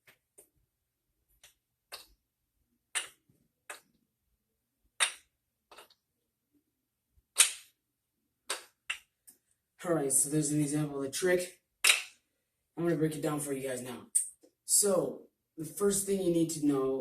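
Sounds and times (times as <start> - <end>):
wooden ball clacking onto cups: 2.9 - 3.9, 5.0 - 6.0, 7.4 - 7.7, 8.5 - 9.1, 11.8 - 12.2.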